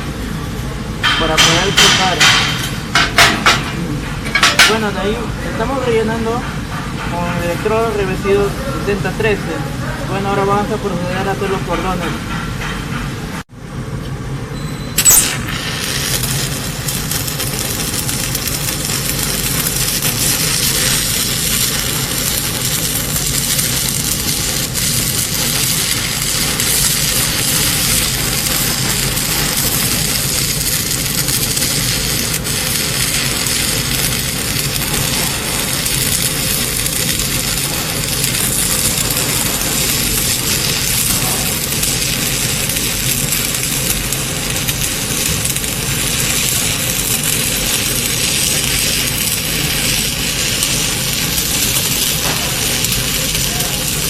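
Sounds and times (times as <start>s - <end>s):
welding arc crackling and sizzling: 0.0s - 12.1s, 15.0s - 54.0s.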